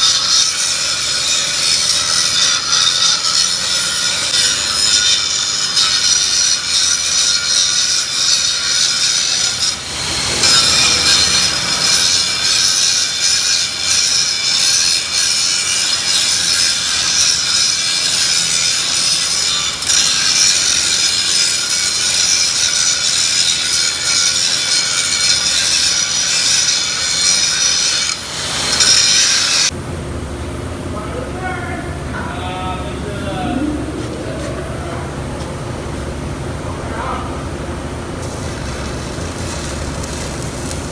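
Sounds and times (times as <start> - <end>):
electric arc welding hiss: 0.0 - 29.7, 38.2 - 40.9.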